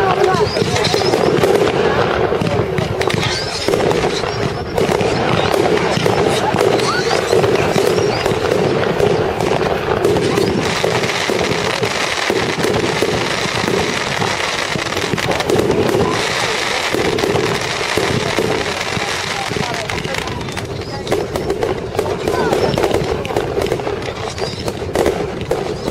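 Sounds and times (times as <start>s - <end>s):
fireworks crackling: 0.0s - 25.9s.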